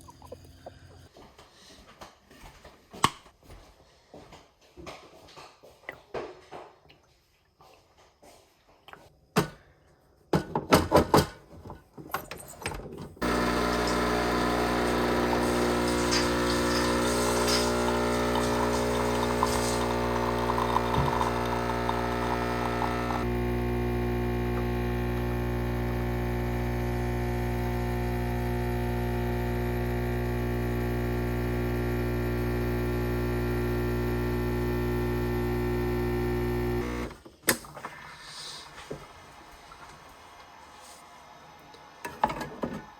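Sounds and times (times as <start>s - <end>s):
machine motor humming: 13.2s - 37.2s.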